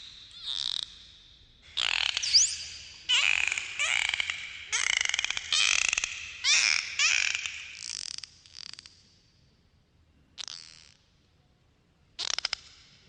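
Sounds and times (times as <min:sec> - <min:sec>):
dolphins whistling: 0:01.7 - 0:07.8.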